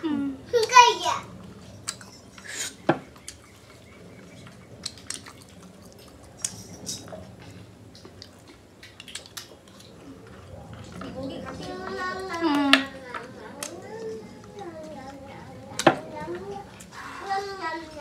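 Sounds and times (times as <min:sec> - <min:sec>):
wet chewing: 0:01.6 - 0:17.0
mouth clicks and smacks: 0:07.9 - 0:10.0.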